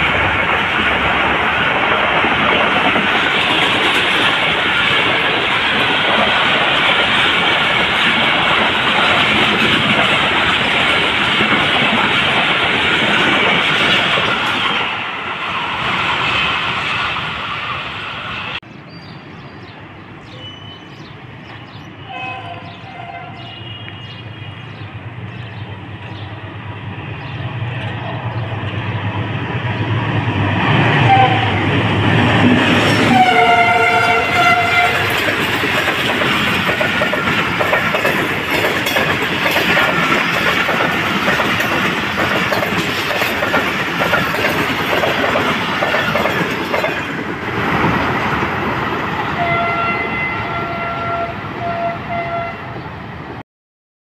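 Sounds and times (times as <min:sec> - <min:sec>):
coaches clattering on rails: 0:00.0 - 0:14.9, 0:32.4 - 0:48.0
diesel locomotive engine rumble: 0:19.8 - 0:53.4
train horn: 0:22.0 - 0:24.6, 0:31.0 - 0:31.7, 0:33.0 - 0:35.2, 0:49.4 - 0:52.8.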